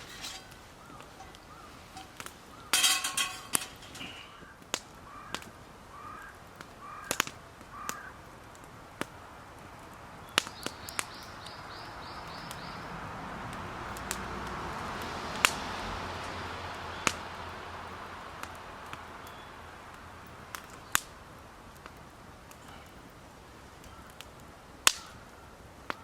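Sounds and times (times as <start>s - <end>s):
crow cawing: 4.0s - 8.2s, 25.0s - 25.5s
sharp clicks and pops: 6.6s - 9.2s.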